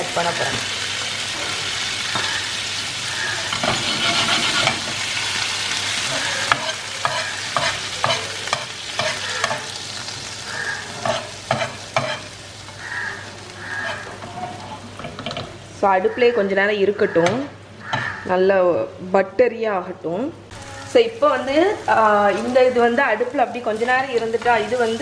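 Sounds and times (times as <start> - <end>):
gravy sizzling on hot pan: 0.0 - 15.9, 20.5 - 25.0
metal spatula scraping pan: 3.4 - 5.0, 6.0 - 9.7, 10.9 - 12.4, 13.6 - 15.2.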